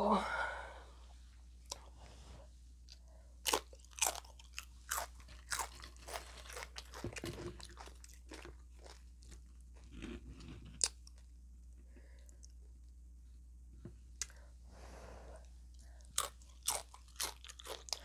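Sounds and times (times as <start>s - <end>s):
soft chewing: 1.6s - 13.0s, 15.3s - 18.0s
taco shell crunching: 3.5s - 11.2s.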